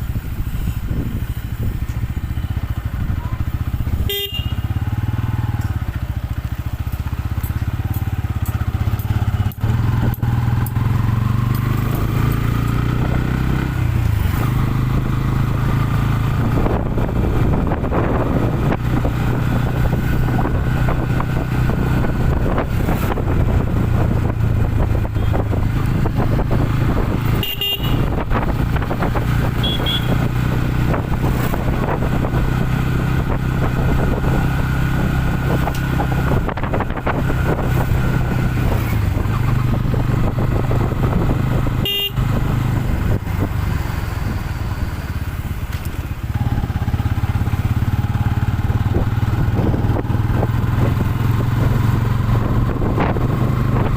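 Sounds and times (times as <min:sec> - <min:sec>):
motorcycle engine running: 0:00.0 - 0:53.9
road and wind noise: 0:00.0 - 0:53.9
short horn beeps: 0:04.0 - 0:04.8, 0:27.3 - 0:28.2, 0:29.6 - 0:30.2, 0:41.8 - 0:42.3.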